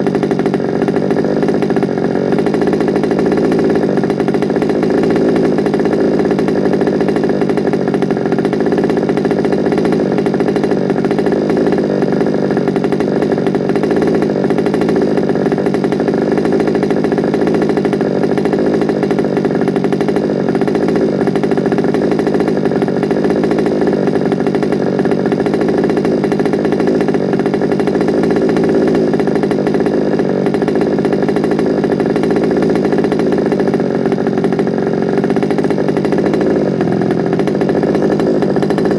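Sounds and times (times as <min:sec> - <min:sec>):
small two-stroke engine idling: 0:00.0 - 0:38.9.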